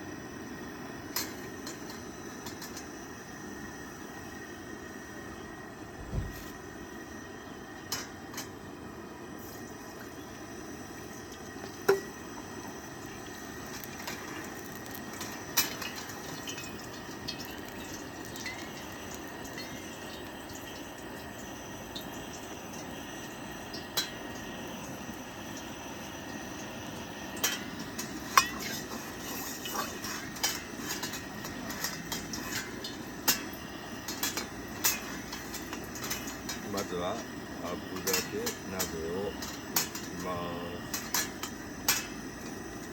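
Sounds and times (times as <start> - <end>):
metal cookware clinking: 1.1 - 2.9, 7.9 - 8.6, 13.5 - 20.6, 23.7 - 24.4, 27.3 - 42.9.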